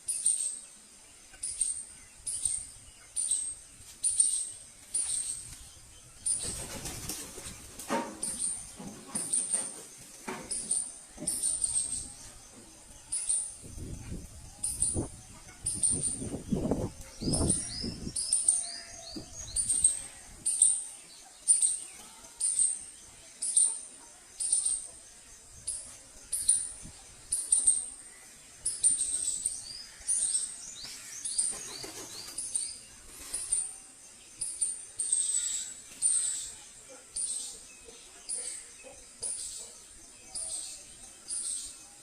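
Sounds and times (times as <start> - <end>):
bird chirping: 0.0 - 42.0.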